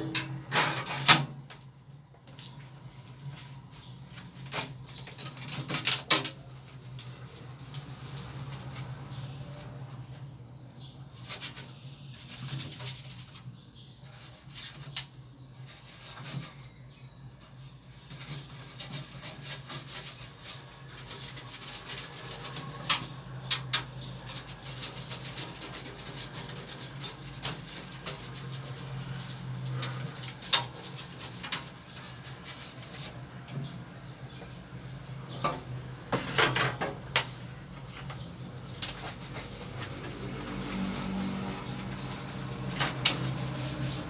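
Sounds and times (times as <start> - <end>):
brush scrubbing: 17.7 - 23.0, 24.2 - 33.3, 38.6 - 44.0.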